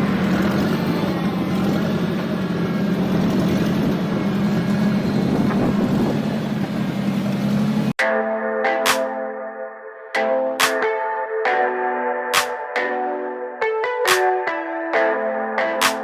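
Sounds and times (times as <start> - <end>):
heavy equipment engine droning: 0.0 - 7.8.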